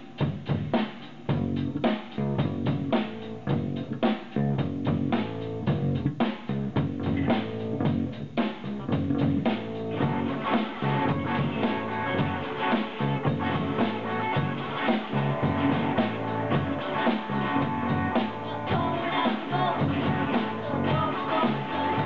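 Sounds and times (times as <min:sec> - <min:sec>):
rock band playing live: 0:09.0 - 0:22.0.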